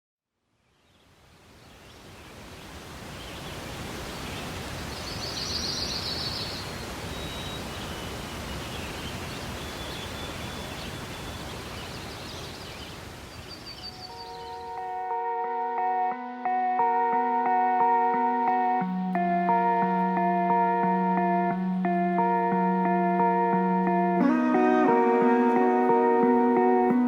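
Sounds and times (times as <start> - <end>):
birds chirping and whistling: 13.7 - 14.8.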